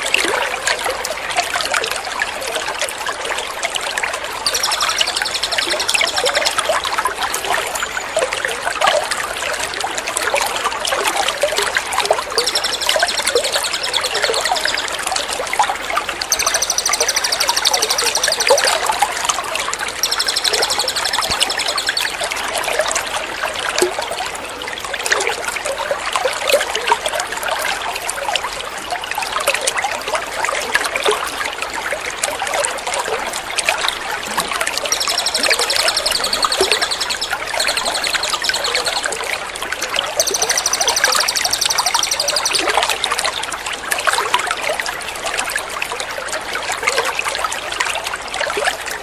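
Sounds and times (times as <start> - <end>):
water trickling and splashing: 0.0 - 49.0
songbird trilling: 4.5 - 6.8, 12.3 - 15.0, 16.3 - 22.2, 34.7 - 39.2, 39.8 - 42.8.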